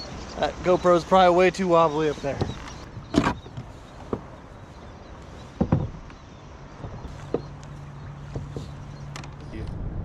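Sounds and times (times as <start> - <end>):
wind and water hiss: 0.0 - 10.0
knocks on kayak hull: 5.6 - 6.1.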